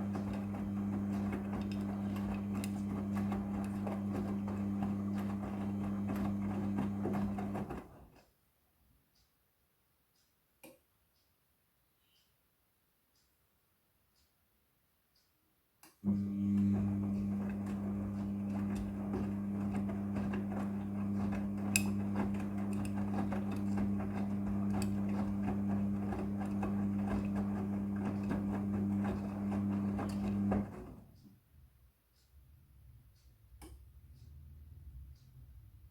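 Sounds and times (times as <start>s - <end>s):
washing machine humming: 0.0s - 8.1s, 16.0s - 31.2s.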